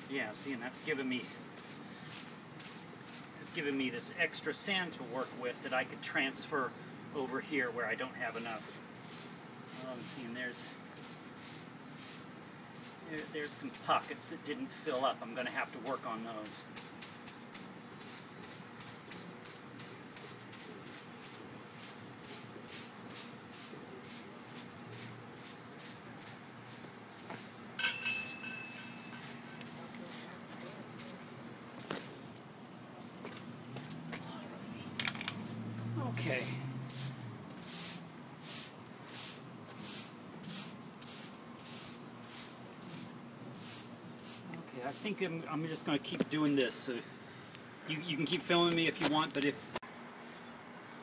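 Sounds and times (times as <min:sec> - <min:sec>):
broom sweeping damp sand: 0:00.0 - 0:05.8, 0:07.8 - 0:27.6, 0:28.7 - 0:31.2, 0:35.5 - 0:45.4.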